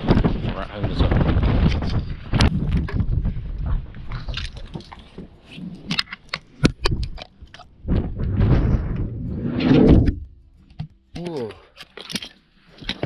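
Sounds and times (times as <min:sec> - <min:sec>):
wind rumble on microphone: 0:00.0 - 0:05.0, 0:07.8 - 0:10.3
crinkling handling noise: 0:00.0 - 0:09.1, 0:10.3 - 0:13.0
sharp clicks and crackles: 0:00.0 - 0:09.1.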